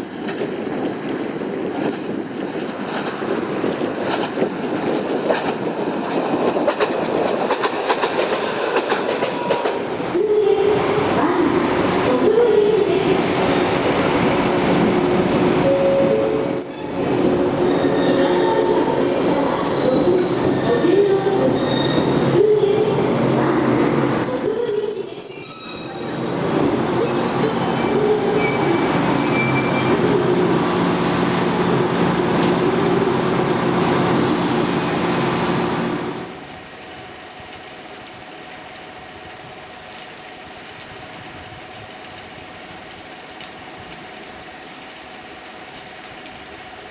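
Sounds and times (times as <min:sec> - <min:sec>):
electric train running on rails: 0:00.0 - 0:39.0
train wheels squealing: 0:15.4 - 0:31.6.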